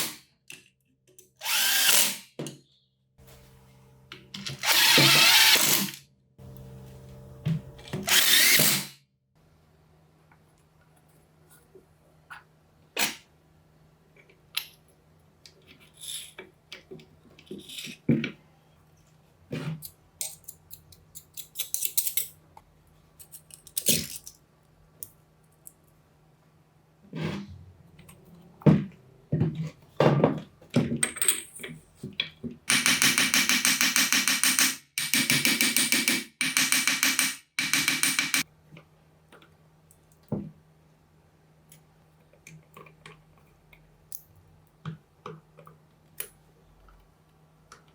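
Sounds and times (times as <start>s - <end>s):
power tool motor bursts: 1.4s - 2.2s, 4.6s - 6.0s, 8.1s - 8.9s.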